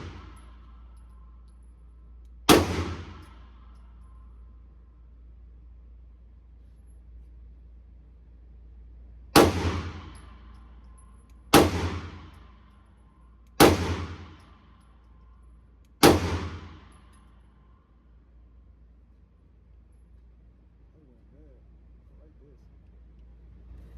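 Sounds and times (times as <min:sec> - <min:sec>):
pistol shots echoing indoors: 0:00.0 - 0:04.7, 0:09.2 - 0:19.0.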